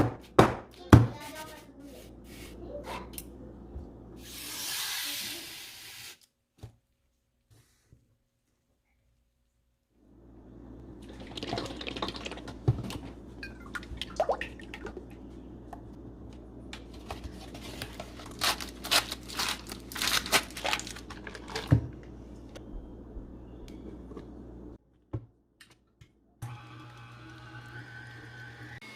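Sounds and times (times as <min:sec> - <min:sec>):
steady low hum: 0:10.0 - 0:24.8
liquid sounds: 0:10.8 - 0:15.9.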